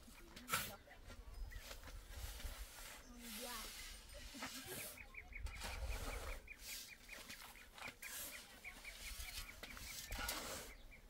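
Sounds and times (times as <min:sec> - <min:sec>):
short scraping noises: 0:01.6 - 0:10.9
bird chirping rapidly: 0:04.8 - 0:11.0.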